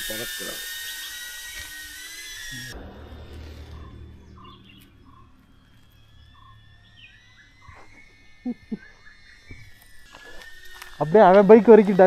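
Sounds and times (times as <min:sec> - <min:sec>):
birds chirping: 0:02.2 - 0:12.0
faint low hum: 0:02.5 - 0:10.1.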